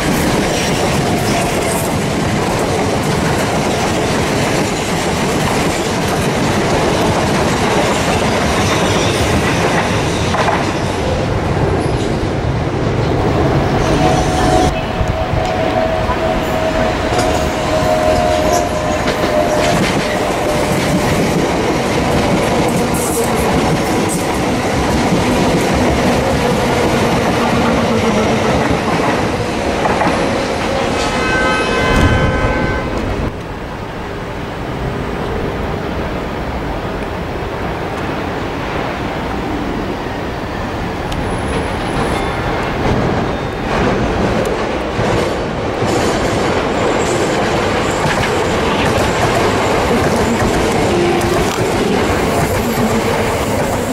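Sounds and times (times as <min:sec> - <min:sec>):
train wheels clattering on rails: 0:00.0 - 0:12.3, 0:12.9 - 0:33.4, 0:41.0 - 0:53.9
passing train rumble: 0:00.0 - 0:53.9
train horn blast: 0:31.0 - 0:33.4.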